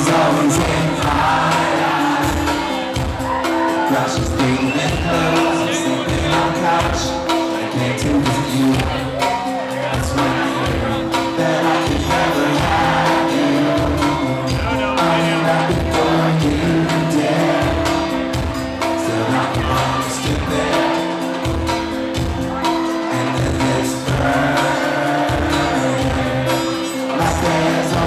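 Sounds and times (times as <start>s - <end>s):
audience voices: 0.0s - 28.0s
person singing: 0.0s - 28.0s
rock band playing live: 0.0s - 28.0s.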